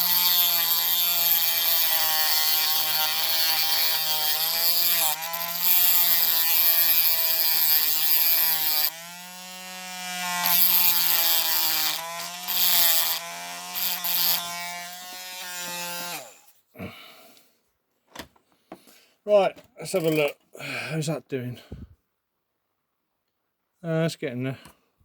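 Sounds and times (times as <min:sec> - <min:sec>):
rotary tool winding down: 0:00.0 - 0:16.5
rotary tool grinding metal: 0:00.0 - 0:16.6, 0:19.9 - 0:20.4.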